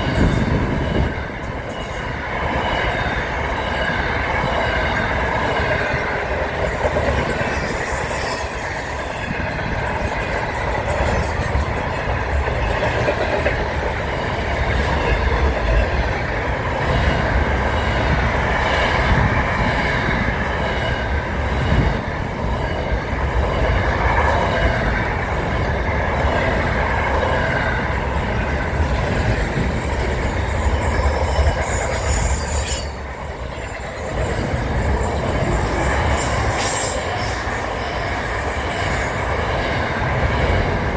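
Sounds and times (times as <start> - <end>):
train rumbling on rails: 0.0 - 40.9
high wheel squeal: 7.4 - 9.6, 29.6 - 40.0.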